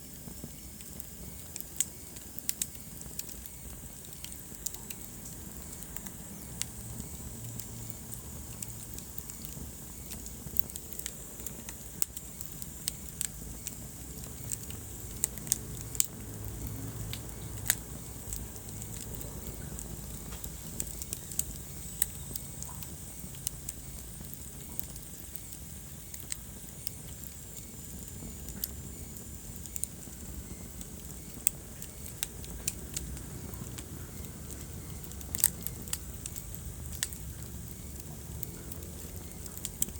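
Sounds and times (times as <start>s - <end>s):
fire crackling and popping: 0.0s - 39.9s
flames burning: 0.0s - 39.9s.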